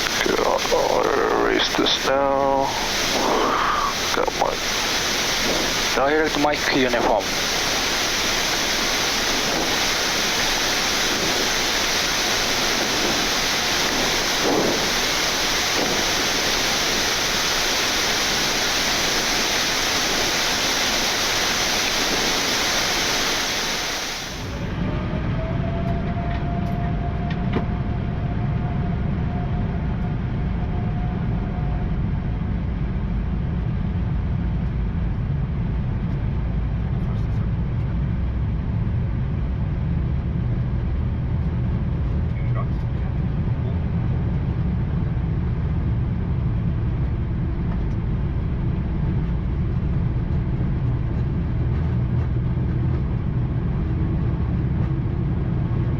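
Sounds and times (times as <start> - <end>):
rushing airflow hiss: 0.0 - 24.7
low rumble: 0.0 - 55.9.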